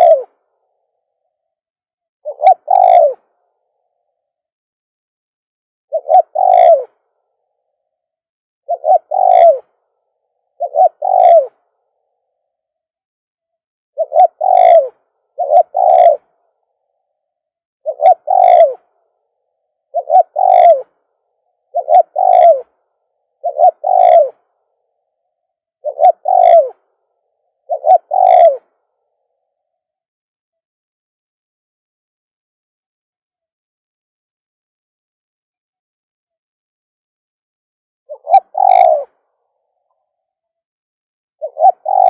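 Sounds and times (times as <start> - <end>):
dove cooing: 0.0 - 0.4, 2.2 - 3.5, 5.9 - 7.1, 8.7 - 9.8, 10.5 - 11.7, 14.0 - 16.4, 17.8 - 19.0, 19.9 - 21.0, 21.6 - 22.8, 23.4 - 24.5, 25.8 - 28.8, 38.1 - 39.3, 41.4 - 42.0.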